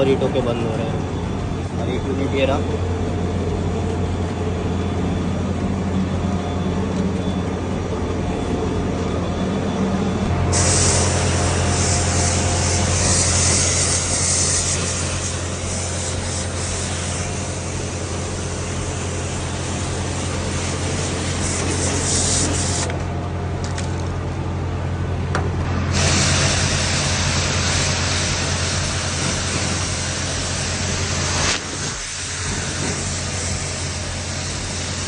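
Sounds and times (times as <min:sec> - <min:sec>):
air conditioner humming: 0:00.0 - 0:35.0
pump motor: 0:00.0 - 0:35.0
hissing water spray: 0:10.4 - 0:22.9, 0:25.8 - 0:35.0.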